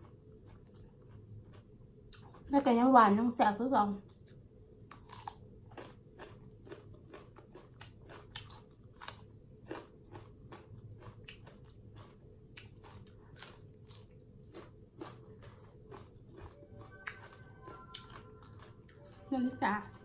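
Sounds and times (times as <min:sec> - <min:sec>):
person chewing crunchy food: 0:00.0 - 0:02.5, 0:04.9 - 0:20.0.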